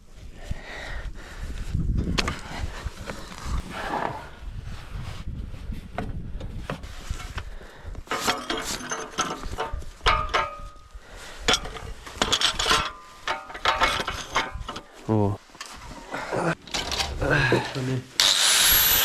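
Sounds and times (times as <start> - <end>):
hard objects knocking and clattering: 8.2 - 10.8.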